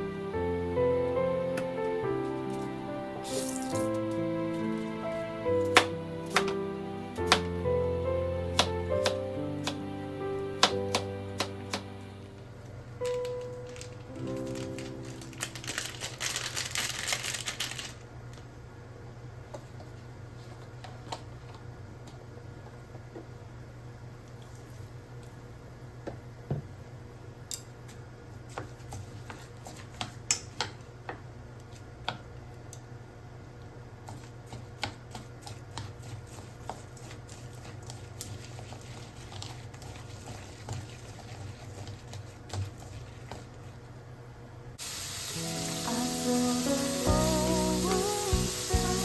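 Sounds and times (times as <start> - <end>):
low steady hum: 0.0 - 28.8
food sizzling in frying pan: 44.8 - 49.0.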